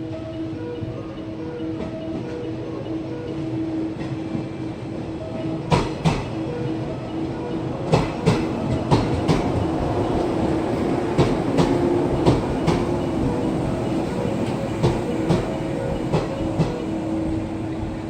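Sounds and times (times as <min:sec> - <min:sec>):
electric train humming: 0:00.0 - 0:18.0
train wheels clacking over joints: 0:05.3 - 0:06.6, 0:07.6 - 0:18.0.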